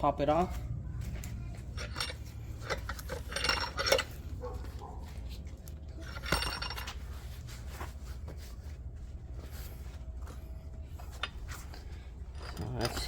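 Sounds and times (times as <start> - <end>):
faint metal clinks: 1.7 - 4.5, 10.3 - 13.0.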